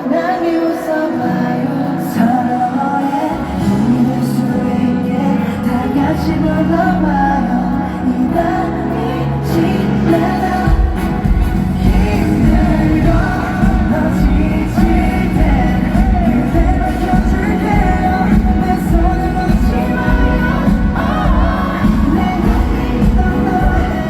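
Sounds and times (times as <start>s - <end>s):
live pop music with singing: 0.0s - 24.0s
deep bass line: 10.1s - 24.0s.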